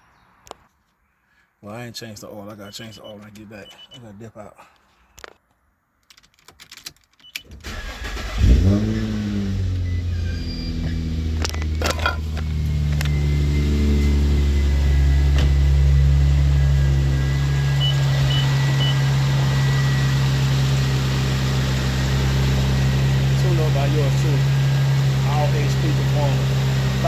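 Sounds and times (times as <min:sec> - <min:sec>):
car engine idling: 0:07.6 - 0:27.0
clicks: 0:11.3 - 0:13.3.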